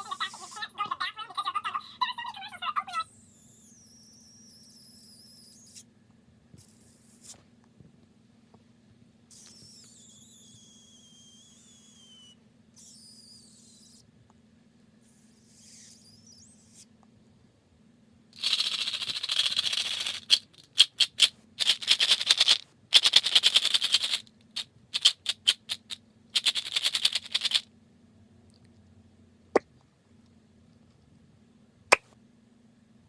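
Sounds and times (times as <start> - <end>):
crisp rustling and scratching: 18.4 - 27.7.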